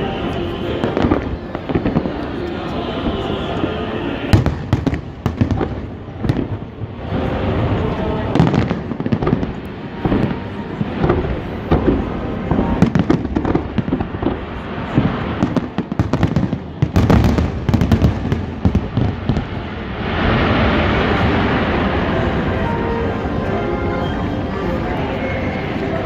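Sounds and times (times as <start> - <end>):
music: 0.0 - 13.2, 20.0 - 26.0
fireworks booming and cracking: 0.0 - 23.9.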